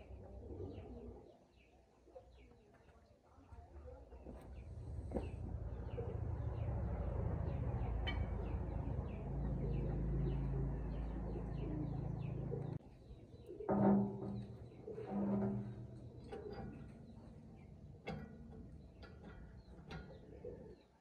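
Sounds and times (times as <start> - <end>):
dove cooing: 0.0 - 1.3, 5.2 - 14.0, 20.1 - 20.9
birds chirping: 4.2 - 21.0
steady low rumble: 4.6 - 12.8.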